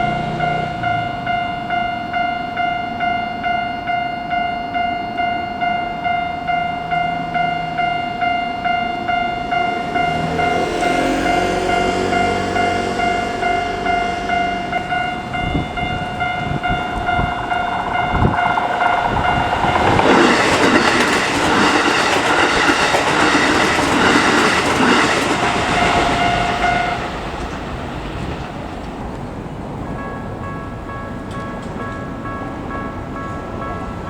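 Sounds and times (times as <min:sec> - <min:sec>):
level-crossing warning bell ringing: 0:00.0 - 0:28.4, 0:29.7 - 0:34.0
train wheels clattering over rail joints: 0:17.7 - 0:29.2.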